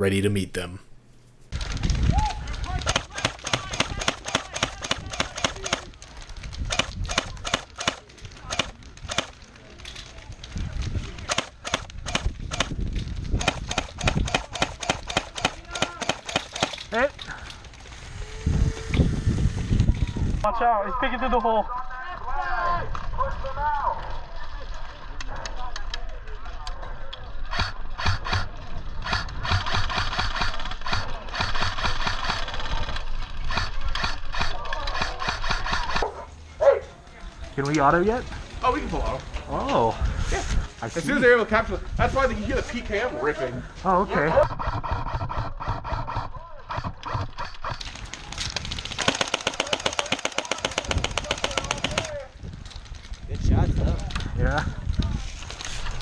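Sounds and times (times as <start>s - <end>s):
airsoft guns firing: 2.8s - 5.9s, 13.4s - 16.8s, 27.5s - 36.1s, 44.4s - 52.3s.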